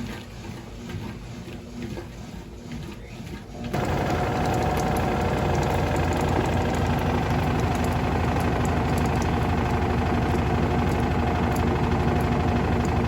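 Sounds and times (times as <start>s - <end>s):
washing machine running: 0.0s - 13.0s
fast even rattle: 3.8s - 13.0s.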